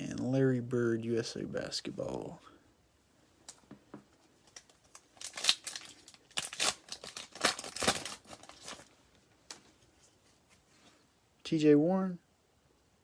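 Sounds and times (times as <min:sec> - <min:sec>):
cards clicking and rustling: 0:04.4 - 0:08.9
foil wrapper tearing: 0:04.5 - 0:08.9.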